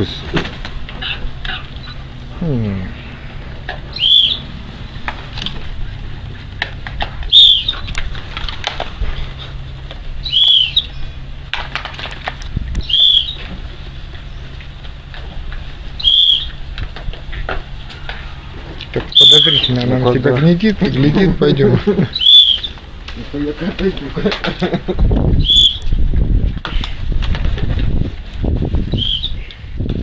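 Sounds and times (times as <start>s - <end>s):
wing flaps: 0.0s - 19.8s, 22.3s - 30.0s
high arched bird call: 2.9s - 4.7s, 7.3s - 7.9s, 10.2s - 11.4s, 12.8s - 13.5s, 16.0s - 16.7s, 17.8s - 19.8s, 22.1s - 22.8s, 25.4s - 26.0s, 28.9s - 29.5s.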